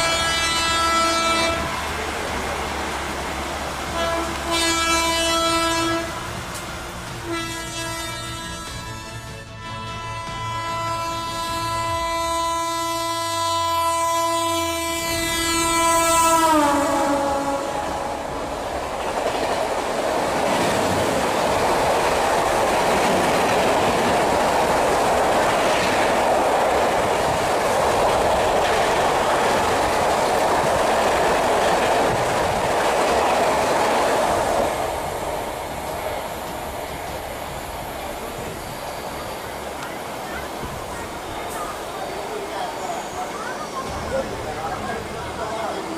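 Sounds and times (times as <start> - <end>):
train horn: 0.0 - 2.0, 3.9 - 6.4, 7.1 - 18.6
train coaches rushing and clattering: 0.0 - 45.9.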